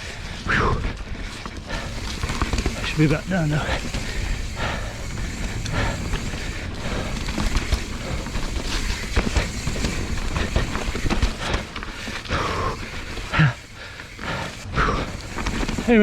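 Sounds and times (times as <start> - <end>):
bike tyre and frame rattle: 0.0 - 16.0.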